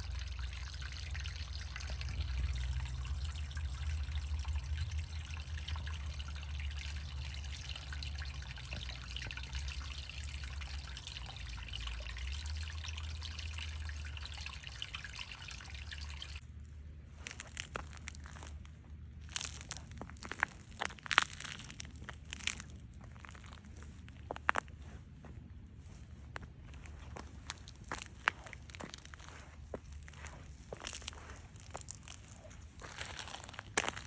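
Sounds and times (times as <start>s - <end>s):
water trickling: 0.0s - 16.5s, 26.9s - 34.0s.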